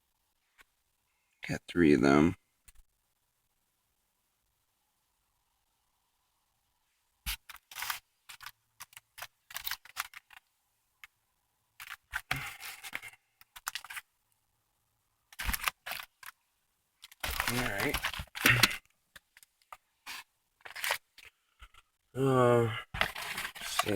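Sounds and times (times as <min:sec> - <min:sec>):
fireworks packages handled: 0:07.3 - 0:10.4, 0:11.8 - 0:14.0, 0:15.3 - 0:16.4, 0:17.0 - 0:21.8, 0:22.9 - 0:23.9.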